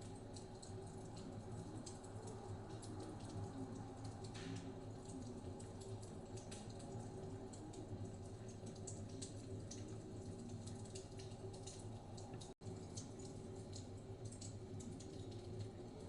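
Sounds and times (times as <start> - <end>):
wood fire crackling: 0.2 - 16.0.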